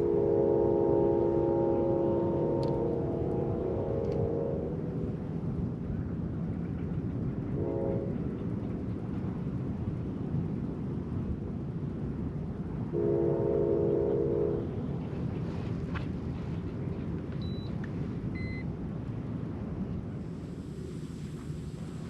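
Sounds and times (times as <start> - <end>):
horn blasts: 0.0 - 4.7, 13.0 - 14.7.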